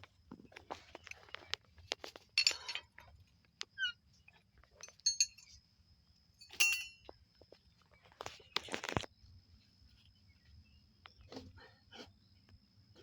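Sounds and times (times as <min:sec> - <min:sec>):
hard objects knocking and clinking: 0:06.4 - 0:07.1.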